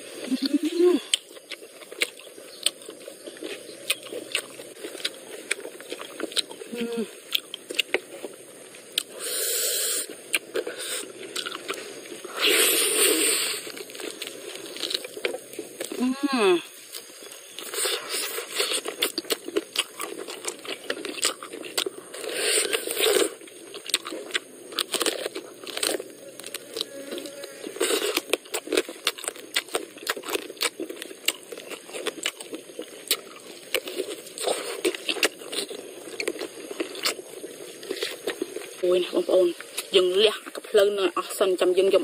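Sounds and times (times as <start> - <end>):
lip smacks and chewing: 0.3 - 9.2, 10.0 - 16.0, 16.8 - 26.9, 27.8 - 38.8
slurping: 8.9 - 16.0, 17.0 - 38.7.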